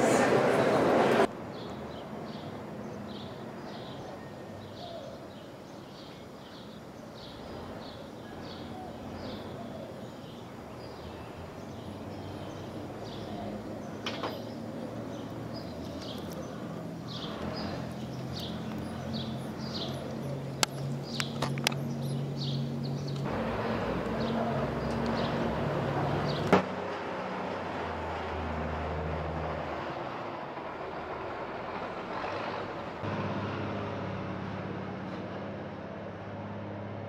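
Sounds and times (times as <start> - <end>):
steady background noise: 0.0 - 26.8
bird chirping: 1.5 - 23.3.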